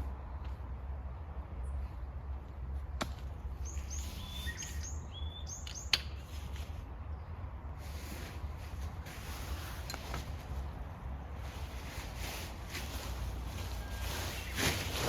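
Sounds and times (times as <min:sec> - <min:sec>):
small birds chirping: 0:03.4 - 0:07.4, 0:13.7 - 0:14.9.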